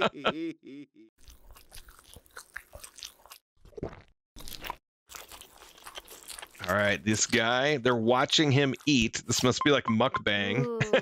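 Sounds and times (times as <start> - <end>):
crunchy biting and chewing: 1.2 - 9.5.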